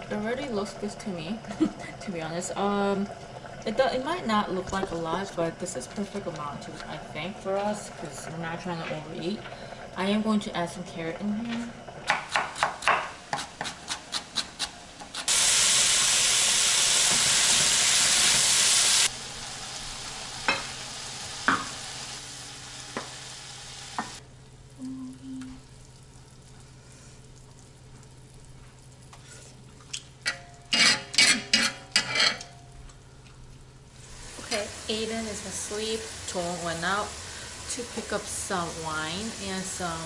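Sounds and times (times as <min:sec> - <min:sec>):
knife chopping on wooden board: 0:12.1 - 0:14.7
food sizzling in a hot pan: 0:15.2 - 0:28.3, 0:33.9 - 0:40.0.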